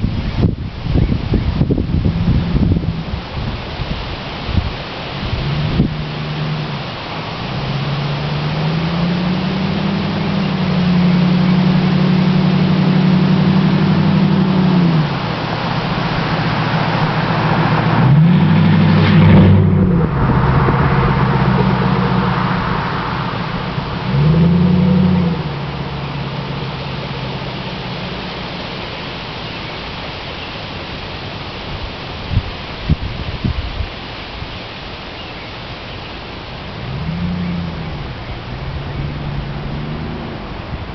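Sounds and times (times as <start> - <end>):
loud car engine revving: 5.1 - 30.5, 36.4 - 40.9.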